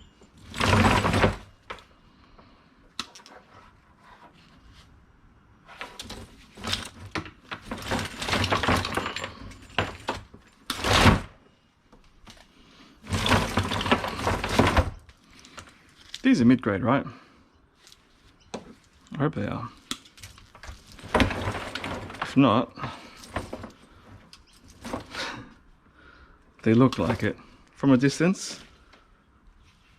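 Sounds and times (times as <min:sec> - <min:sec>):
knocks and crashes: 0:00.0 - 0:01.8, 0:05.8 - 0:11.4, 0:13.0 - 0:15.7, 0:20.0 - 0:25.5
scrap items clattering: 0:00.0 - 0:01.9, 0:05.7 - 0:11.4, 0:12.3 - 0:16.3, 0:17.8 - 0:25.7, 0:26.6 - 0:27.7.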